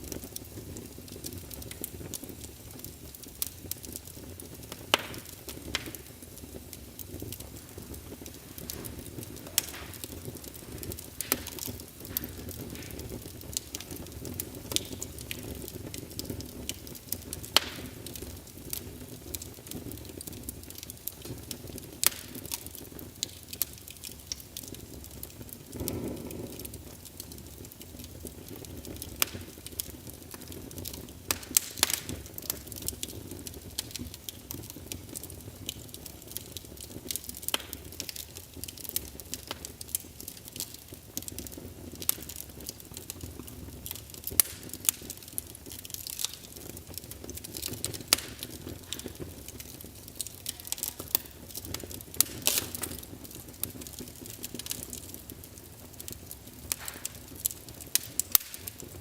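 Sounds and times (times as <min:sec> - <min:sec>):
crackles and pops of fire: 0:00.0 - 0:59.0
fire burning in fireplace: 0:00.0 - 0:59.0.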